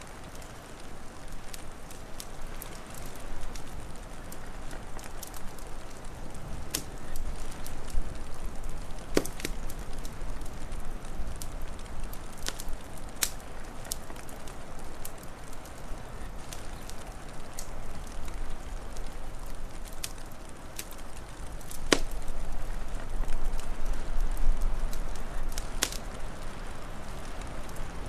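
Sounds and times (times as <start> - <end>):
wood fire crackling: 0.0 - 28.0
sharp pops: 9.1 - 9.6, 21.8 - 22.2.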